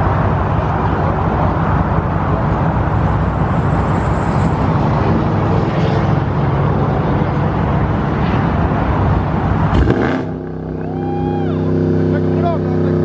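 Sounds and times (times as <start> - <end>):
car engine deep exhaust rumble: 0.0 - 13.0.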